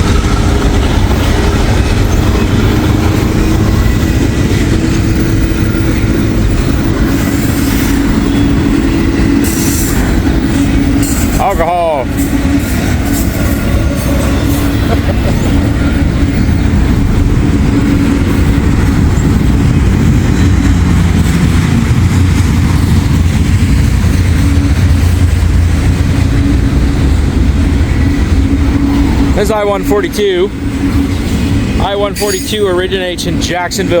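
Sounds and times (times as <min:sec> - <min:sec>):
freight train wheels rumbling: 0:00.0 - 0:34.0
wheels clickety-clack: 0:00.0 - 0:34.0.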